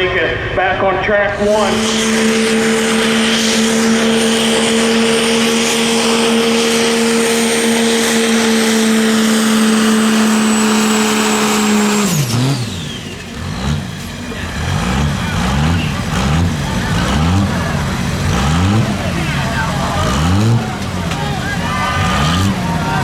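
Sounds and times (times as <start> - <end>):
high whine: 0.0 - 14.5
vehicle engine running flat out: 0.0 - 23.0.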